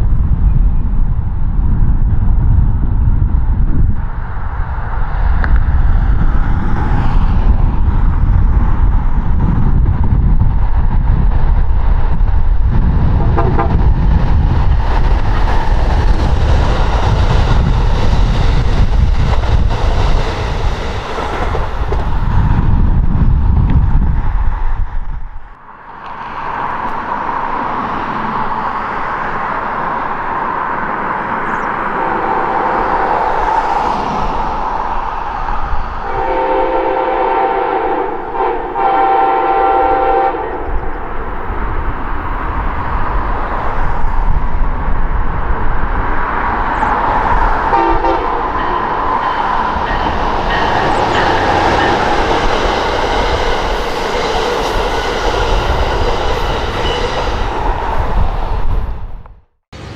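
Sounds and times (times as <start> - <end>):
passenger train rumbling by: 0.0 - 59.9
train horn blasts: 13.2 - 13.9, 31.8 - 33.4, 36.0 - 40.8, 47.7 - 52.2.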